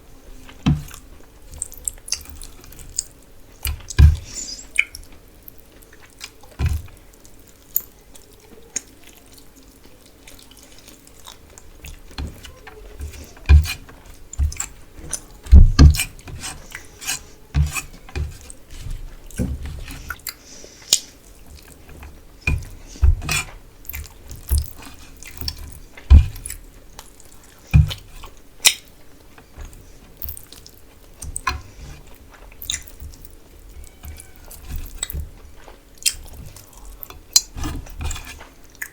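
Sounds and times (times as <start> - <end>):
wet chewing and smacking: 0.4 - 38.9
soft thumps: 12.1 - 16.7.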